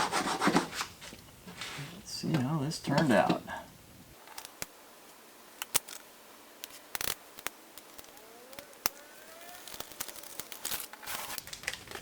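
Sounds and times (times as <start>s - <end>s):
tape peeling with crackles: 5.6s - 12.0s.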